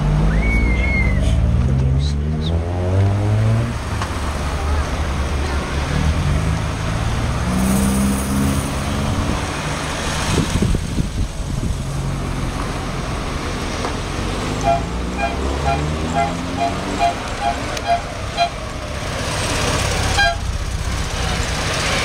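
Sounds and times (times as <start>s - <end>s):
car engines running: 0.0s - 22.0s
car horn short beeps: 14.6s - 18.6s, 20.1s - 20.5s.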